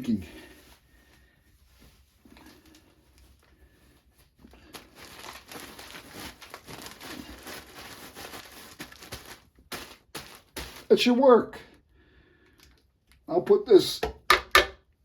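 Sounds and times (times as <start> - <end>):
material rustling and crinkling: 0.0 - 11.5.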